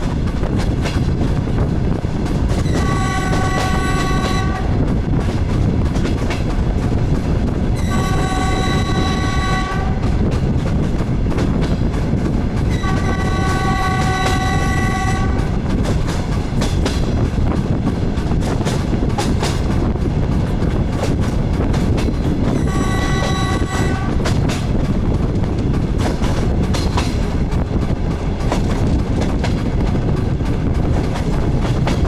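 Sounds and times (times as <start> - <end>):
train running rumble: 0.0 - 32.0
wheels clattering over rail joints: 0.0 - 32.0
railcar horn blasts: 2.5 - 4.9, 7.8 - 10.3, 12.7 - 15.6, 22.5 - 24.6.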